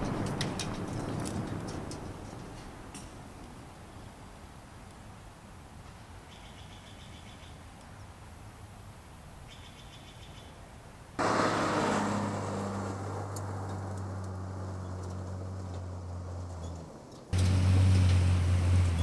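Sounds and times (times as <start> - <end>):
faint bird chirps: 6.3 - 8.1, 9.5 - 10.6.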